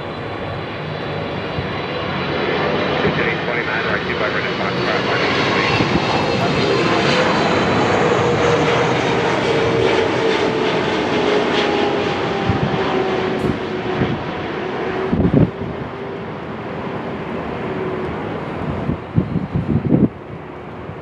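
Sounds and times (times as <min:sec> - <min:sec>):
jet airliner engine roar: 0:00.0 - 0:21.0
wind gust on microphone: 0:04.9 - 0:08.6, 0:12.2 - 0:16.0, 0:17.8 - 0:21.0.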